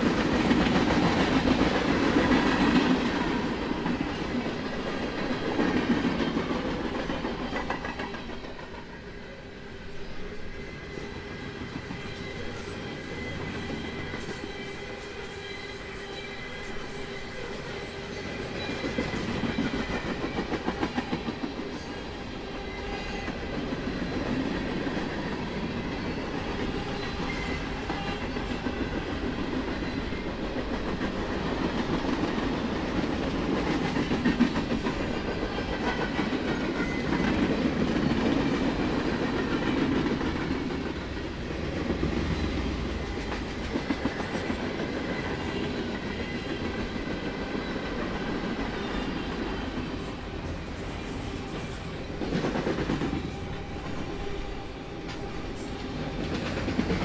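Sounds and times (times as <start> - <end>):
clickety-clack over rail joints: 0.0 - 9.0, 18.3 - 57.0
freight train wheels rumbling: 0.0 - 57.0.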